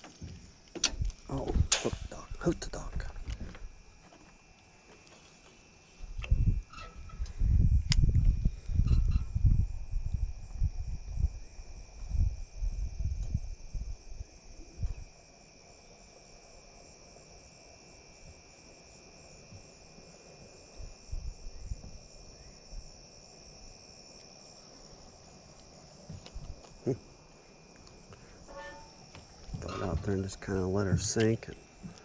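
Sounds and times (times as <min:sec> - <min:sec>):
low rumbles and thumps: 0:00.0 - 0:04.0, 0:06.0 - 0:14.0, 0:28.4 - 0:32.0
insects trilling: 0:00.0 - 0:32.0.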